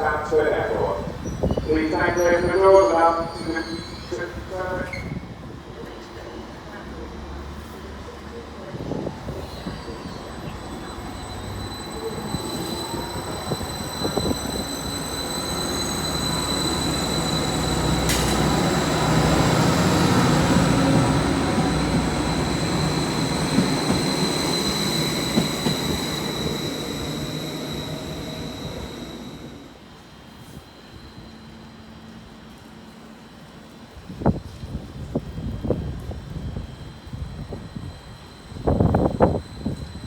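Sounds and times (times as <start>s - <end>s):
train wheels rumbling: 0.0s - 30.2s
train high whine: 0.0s - 40.0s.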